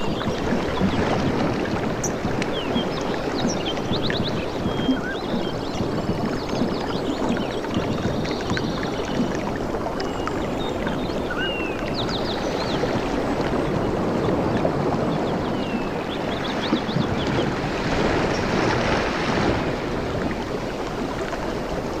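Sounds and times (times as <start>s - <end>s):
river water rushing: 0.0s - 22.0s
wind: 0.0s - 22.0s.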